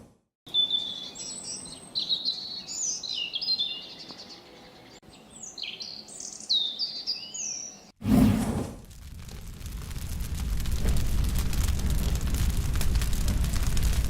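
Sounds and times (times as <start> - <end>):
songbird singing: 0.5 - 7.9.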